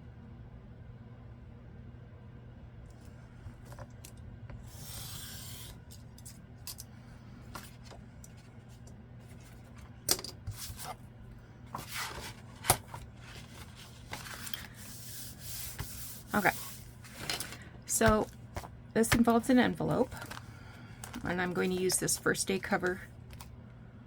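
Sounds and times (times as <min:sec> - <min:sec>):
paper being cut: 0:04.7 - 0:05.8
paper rustling: 0:11.7 - 0:23.4.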